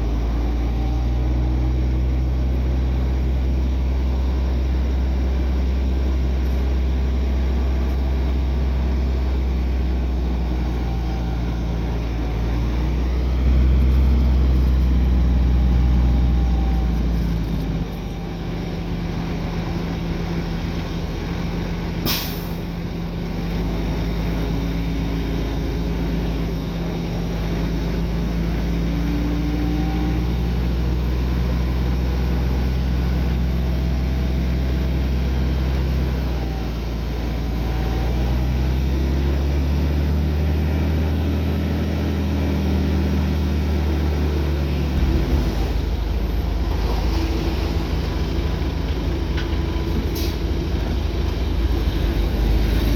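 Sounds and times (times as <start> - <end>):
heavy diesel engines running: 0.0 - 52.9
short sharp hiss: 22.1 - 22.6.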